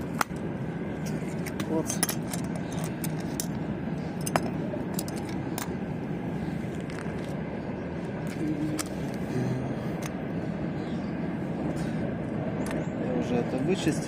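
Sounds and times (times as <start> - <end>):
steady background hum: 0.0 - 14.0
metal parts and tools clinking: 1.0 - 3.6, 4.2 - 5.8.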